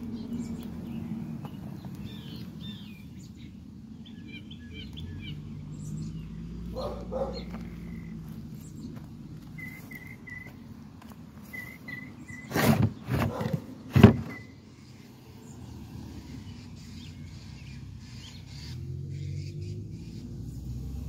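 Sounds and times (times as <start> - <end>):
bird chirping: 0.0 - 20.6
outdoor background hum: 0.0 - 21.0
loud rustling bumps: 12.4 - 14.4.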